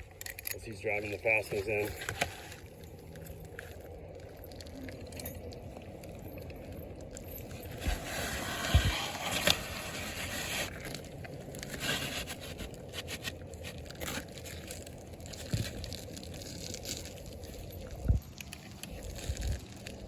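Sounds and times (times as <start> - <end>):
shingles scraping and crinkling: 0.8 - 5.1, 7.2 - 20.0.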